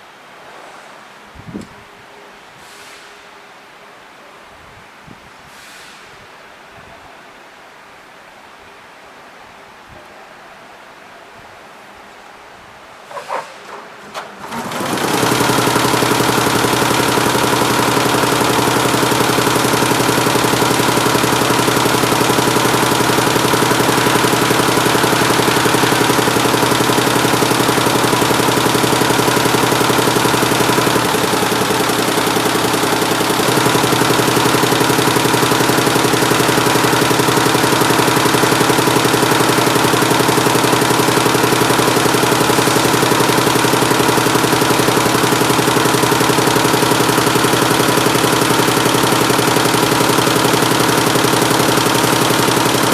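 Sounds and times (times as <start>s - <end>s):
embroidery machine running: 13.1s - 52.9s.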